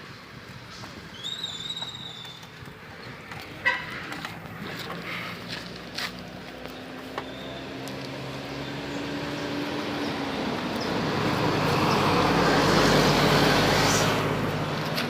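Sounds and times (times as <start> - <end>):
motor vehicle passing by: 2.9 - 15.0
low engine hum: 4.2 - 15.0.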